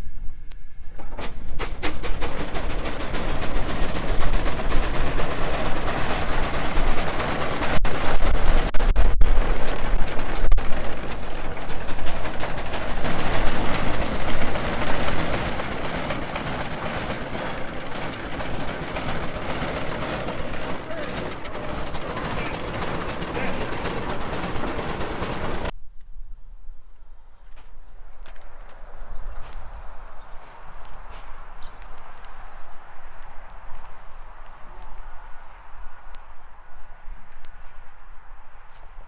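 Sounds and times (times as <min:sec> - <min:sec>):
steam traction engine exhaust chuffing: 0:00.9 - 0:25.7.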